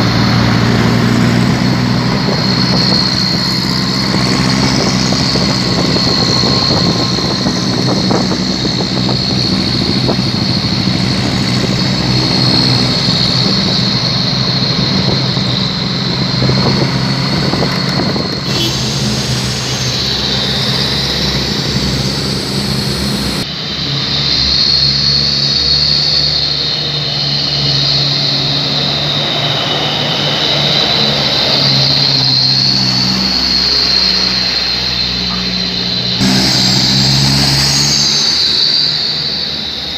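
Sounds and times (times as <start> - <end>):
truck engines with loud exhausts: 0.0 - 39.9.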